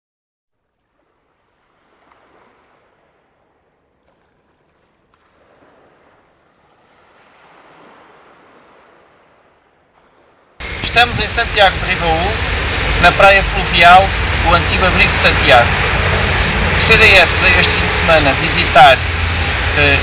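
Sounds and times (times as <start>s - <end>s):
faint outdoor rushing noise: 10.5s - 20.0s.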